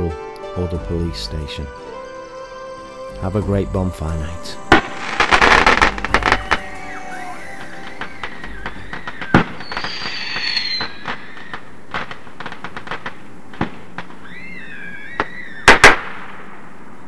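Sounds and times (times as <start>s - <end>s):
firework crackling: 4.2s - 16.8s
firework whistle: 4.5s - 12.6s, 14.2s - 16.3s
firework bangs: 4.7s - 16.8s
scattered firework pops: 7.6s - 14.4s, 15.1s - 16.6s.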